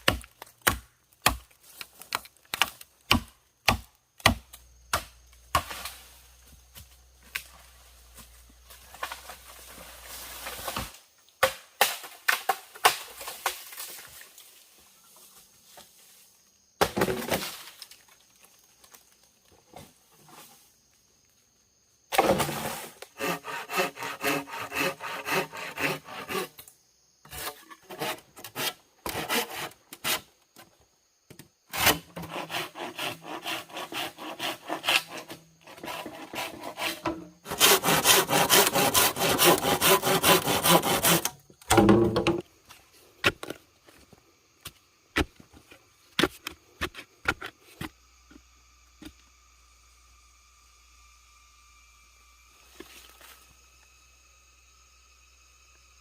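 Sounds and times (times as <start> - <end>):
hand saw cutting wood: 22.2 - 30.3, 31.7 - 41.4.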